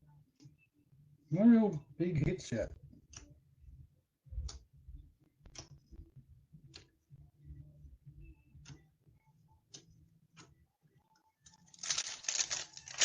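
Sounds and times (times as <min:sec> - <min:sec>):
card handling noise: 0:11.5 - 0:13.0
cards clicking: 0:11.5 - 0:13.0.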